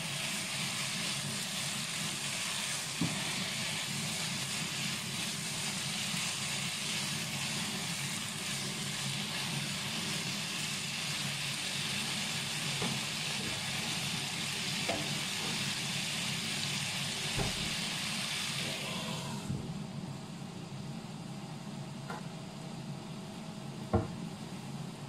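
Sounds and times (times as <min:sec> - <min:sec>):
vegetables sizzling in a frying pan: 0:00.0 - 0:19.7.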